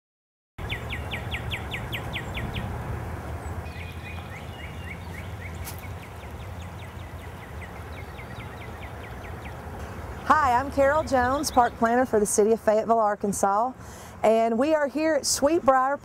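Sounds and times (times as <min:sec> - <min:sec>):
songbird whistling: 0:00.7 - 0:02.7, 0:03.6 - 0:05.9.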